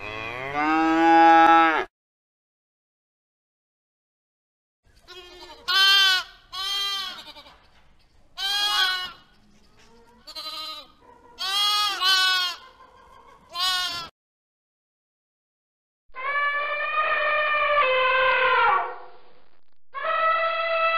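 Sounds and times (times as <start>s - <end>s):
sheep bleating: 5.1s - 7.6s, 10.2s - 12.6s, 13.5s - 14.1s.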